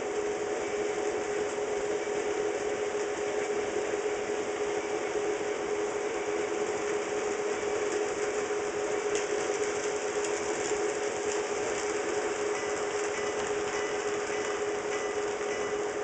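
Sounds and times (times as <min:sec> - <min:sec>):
model train motor hum: 0:00.0 - 0:16.0
wheels clicking on track: 0:07.8 - 0:16.0.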